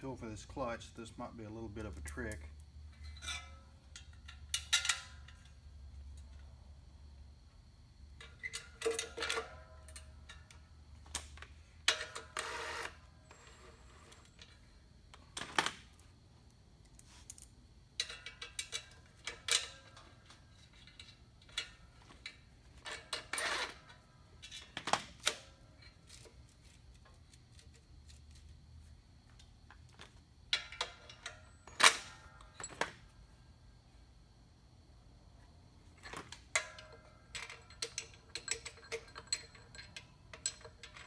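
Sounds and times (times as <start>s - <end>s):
metallic clinks and taps: 36.6s - 41.0s.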